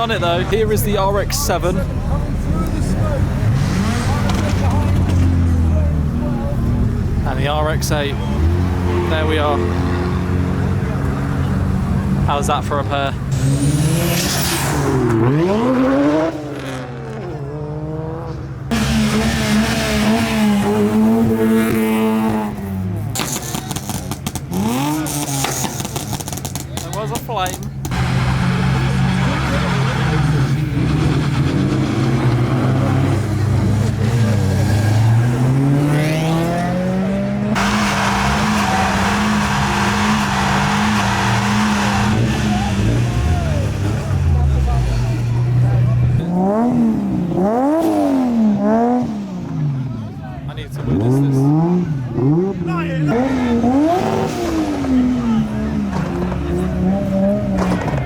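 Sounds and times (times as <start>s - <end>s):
rotary engines revving: 0.0s - 58.0s
tyres squealing in wheelspin: 37.6s - 45.5s.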